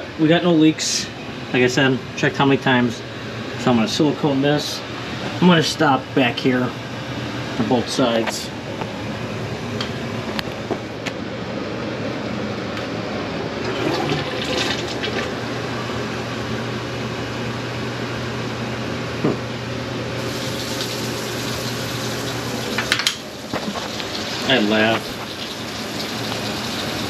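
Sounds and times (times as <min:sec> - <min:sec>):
toilet flushing and refilling: 0:13.6 - 0:15.4, 0:20.2 - 0:27.0.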